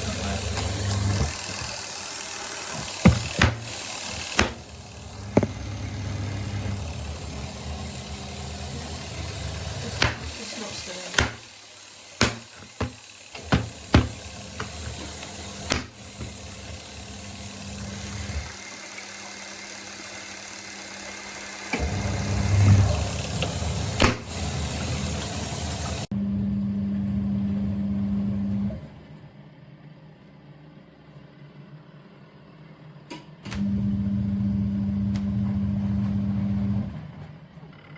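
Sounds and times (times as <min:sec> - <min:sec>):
washing machine motor humming: 0:00.0 - 0:29.1, 0:33.6 - 0:37.4
sharp clicks and knocks: 0:12.2 - 0:16.4.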